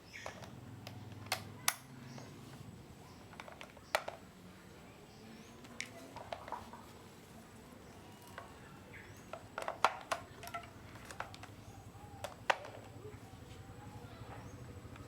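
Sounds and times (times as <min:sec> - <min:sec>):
faint low hum: 0:00.0 - 0:15.0
objects clicking and knocking: 0:00.1 - 0:02.3, 0:03.1 - 0:04.3, 0:05.6 - 0:06.9, 0:08.2 - 0:13.1.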